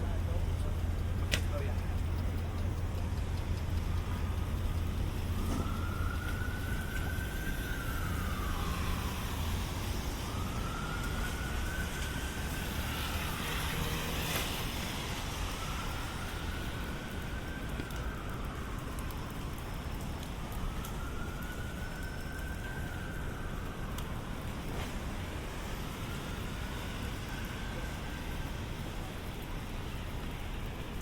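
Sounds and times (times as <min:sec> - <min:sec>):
city traffic rumble: 0:00.0 - 0:31.0
emergency siren wailing: 0:00.0 - 0:31.0.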